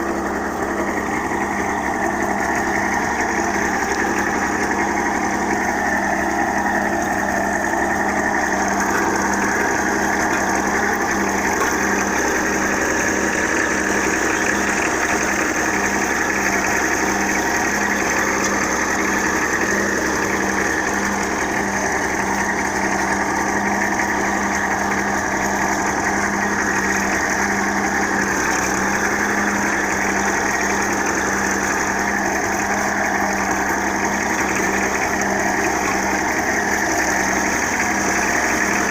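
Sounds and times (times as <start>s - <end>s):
tractor engine droning: 0.0s - 38.9s.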